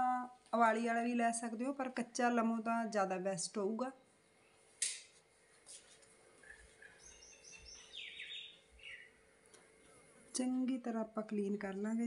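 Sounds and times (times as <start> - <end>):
faint bird chirps: 6.4 - 9.2.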